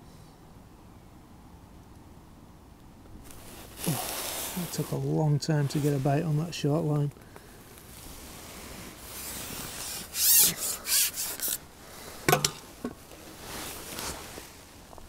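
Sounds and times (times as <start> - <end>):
fishing tackle rubbing and scraping: 8.1 - 14.4.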